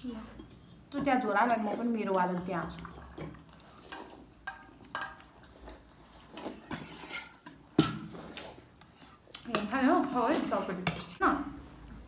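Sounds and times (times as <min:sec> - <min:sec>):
dishes and utensils clinking: 0:02.3 - 0:05.4.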